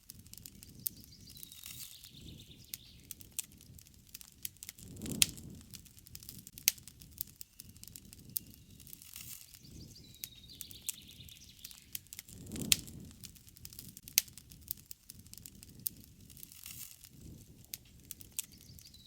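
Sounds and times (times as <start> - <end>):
campfire wood crackling: 0.0 - 19.0
low rush of burning: 0.0 - 19.0.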